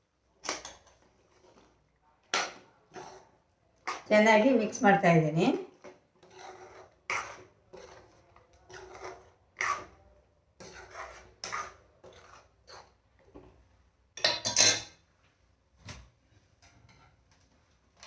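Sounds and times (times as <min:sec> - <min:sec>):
spoon scraping a cooking pan: 0:00.4 - 0:13.6, 0:16.6 - 0:17.2.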